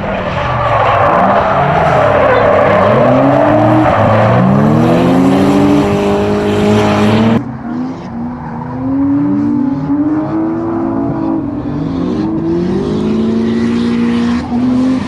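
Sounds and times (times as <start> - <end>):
tyre squeal: 0.0 - 7.4
car engine revving: 0.0 - 15.0.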